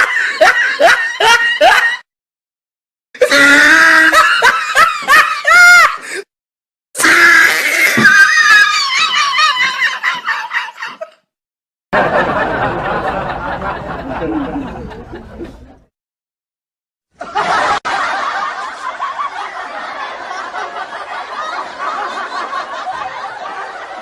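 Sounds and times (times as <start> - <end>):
people laughing: 0.0 - 2.0, 3.6 - 6.0, 7.9 - 11.2, 12.0 - 15.9, 17.2 - 24.0.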